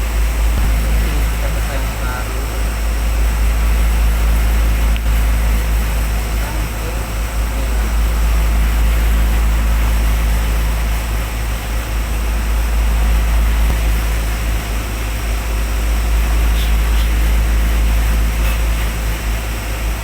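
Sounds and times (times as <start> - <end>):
steady low tones: 0.0 - 11.0
machinery deep hum: 0.0 - 20.0.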